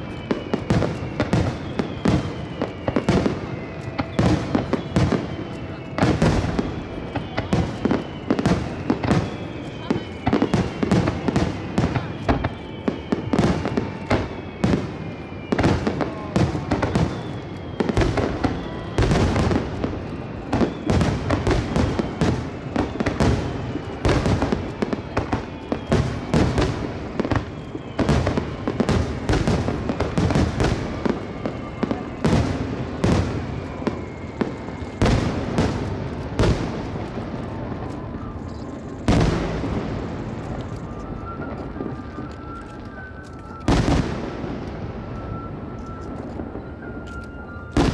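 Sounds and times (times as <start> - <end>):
faint descending whistling tones: 0.0 - 47.9
underwater fireworks bangs: 17.8 - 38.0.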